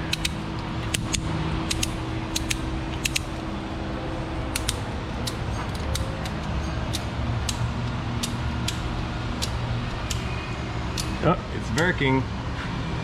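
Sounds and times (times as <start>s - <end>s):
ratchet strap clicking: 0.0s - 3.4s, 4.5s - 10.3s
fan hum: 0.0s - 13.0s.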